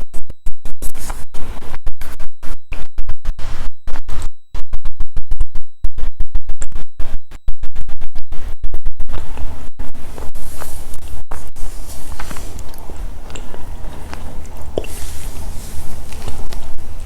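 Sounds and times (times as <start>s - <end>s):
microphone crackling distortion: 0.0s - 17.0s
chewing crunchy snacks: 12.2s - 17.0s.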